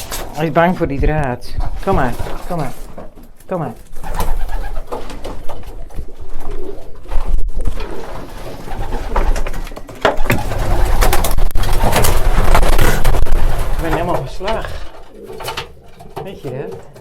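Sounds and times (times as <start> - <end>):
pigeons cooing: 4.0 - 12.0, 12.7 - 17.0.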